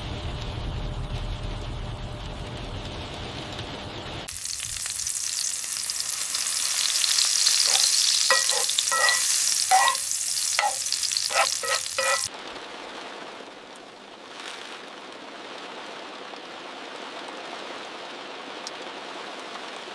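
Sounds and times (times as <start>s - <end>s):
heavy rain downpour: 0.0s - 7.1s, 12.3s - 19.9s.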